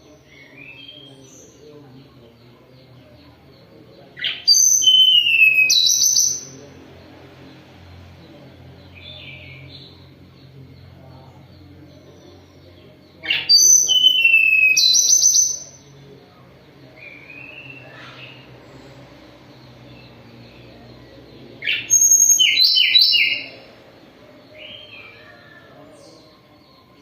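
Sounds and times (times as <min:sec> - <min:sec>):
songbird whistling song: 0:04.2 - 0:06.6, 0:13.2 - 0:15.9, 0:20.0 - 0:23.6
faint low hum: 0:06.2 - 0:13.9.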